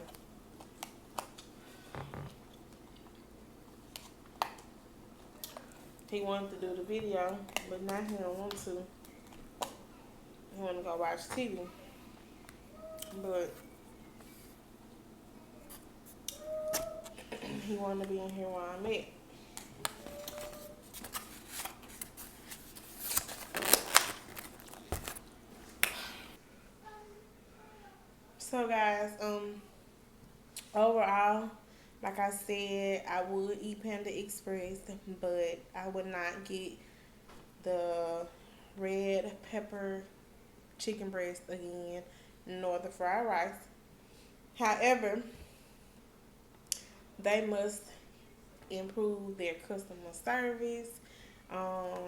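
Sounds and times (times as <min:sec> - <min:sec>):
person chewing food: 0:00.6 - 0:03.3.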